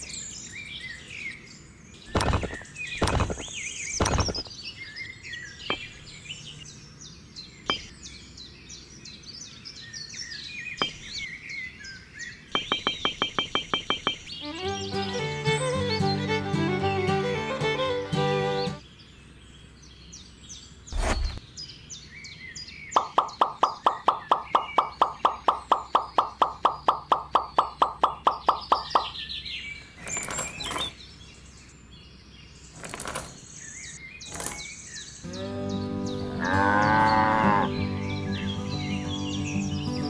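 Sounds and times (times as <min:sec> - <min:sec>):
birds chirping: 0:00.0 - 0:40.0
sharp clicks: 0:02.1 - 0:04.5
music: 0:14.4 - 0:18.8, 0:35.2 - 0:40.0
cow mooing: 0:35.3 - 0:37.8.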